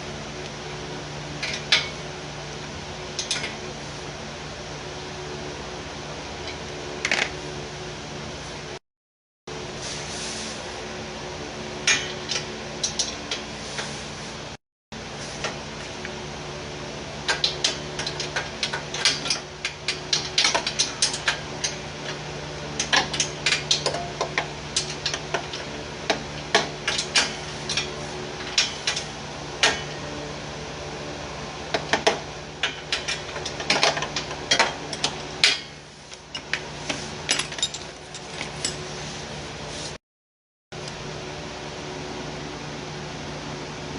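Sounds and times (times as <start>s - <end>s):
steady hum: 0.0s - 8.8s.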